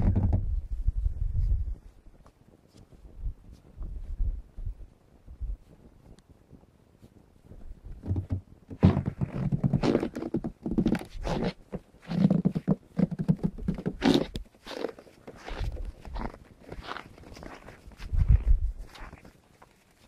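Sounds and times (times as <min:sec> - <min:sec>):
puppies scuffling in snow: 0:14.5 - 0:20.0.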